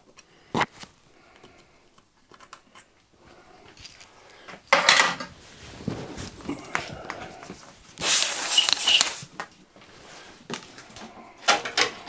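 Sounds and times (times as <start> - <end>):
tools rattling clatter: 3.6 - 5.5, 10.8 - 12.0.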